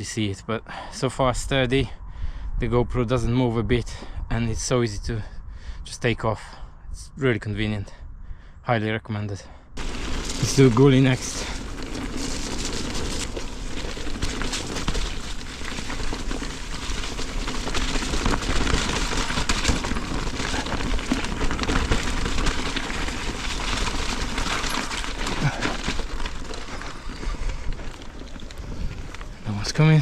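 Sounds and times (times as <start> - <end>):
bike clicks and rattles: 9.8 - 29.5
bike tyres crackling on dirt: 9.8 - 30.0.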